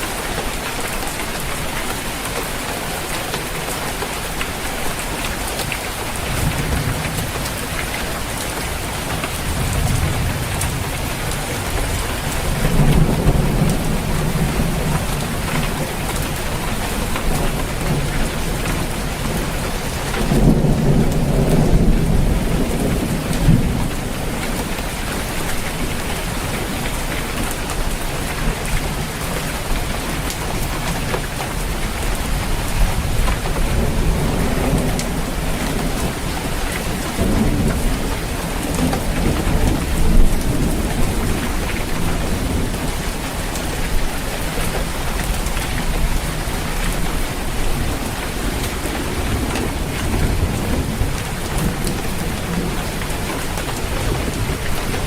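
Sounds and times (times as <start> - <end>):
rain falling on a roof: 0.0 - 55.0
rolling thunder: 6.1 - 25.7, 32.8 - 44.1.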